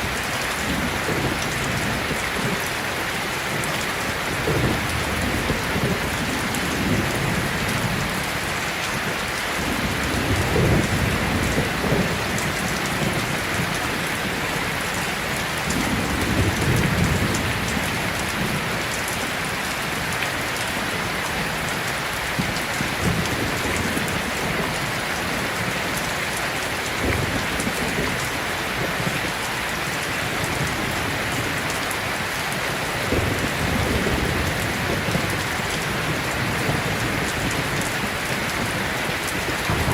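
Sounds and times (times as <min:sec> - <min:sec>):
heavy rain pouring: 0:00.0 - 0:39.9
thunder rolling: 0:39.4 - 0:39.9.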